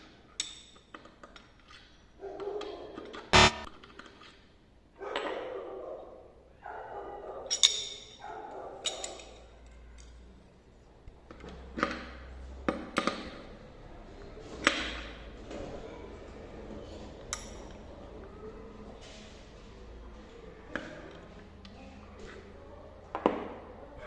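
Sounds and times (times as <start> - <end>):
sharp clicks: 3.4 - 3.7.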